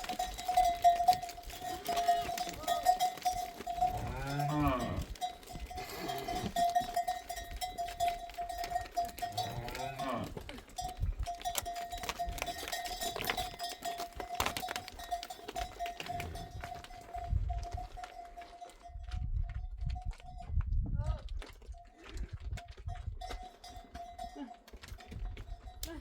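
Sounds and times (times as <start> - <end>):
livestock bells ringing: 0.0 - 20.5, 22.7 - 26.0
cow lowing: 3.8 - 6.6.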